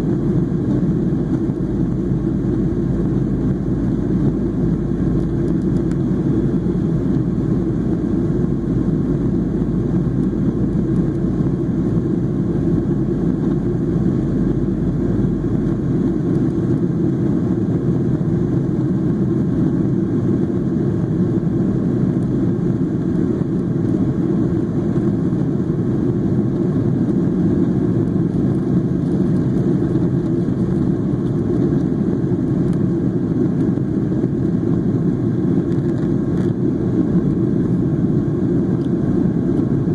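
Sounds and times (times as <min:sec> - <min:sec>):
airliner engine rumble in flight: 0:00.0 - 0:39.9.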